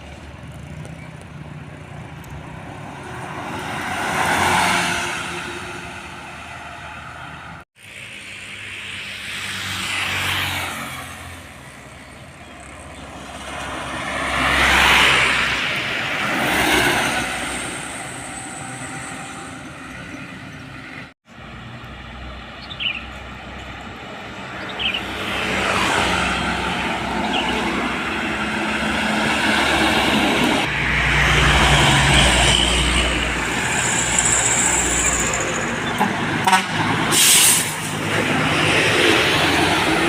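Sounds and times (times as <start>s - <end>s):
trucks passing by: 0.0s - 40.0s.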